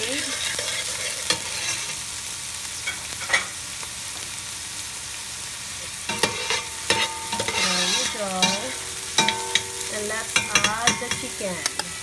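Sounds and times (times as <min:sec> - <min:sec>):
metal spoon scraping a pot: 0:00.0 - 0:02.0, 0:06.1 - 0:09.7
garlic and onion sizzling in oil: 0:00.0 - 0:12.0.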